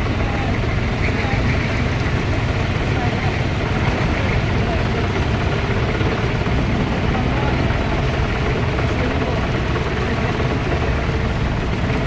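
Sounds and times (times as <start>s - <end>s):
tractor engines running: 0.0s - 12.0s.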